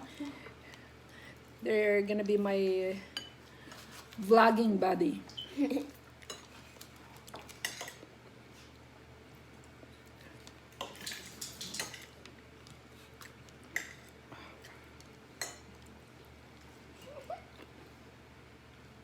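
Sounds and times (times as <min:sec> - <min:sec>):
utensils clinking on dishes: 0:07.6 - 0:08.0, 0:10.8 - 0:12.2.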